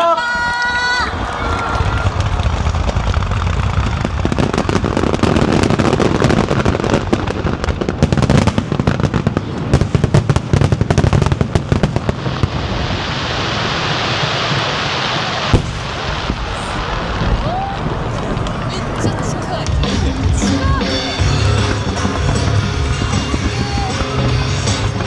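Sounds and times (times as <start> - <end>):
fireworks crackling pops: 0.7 - 25.0
low rumble: 15.6 - 23.6.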